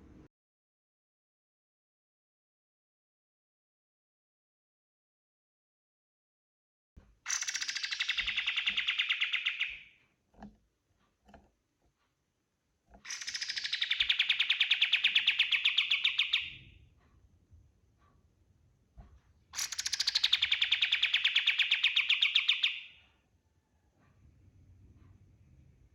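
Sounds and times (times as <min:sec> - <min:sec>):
songbird trilling: 0:07.3 - 0:09.9, 0:13.1 - 0:16.6, 0:19.6 - 0:23.0.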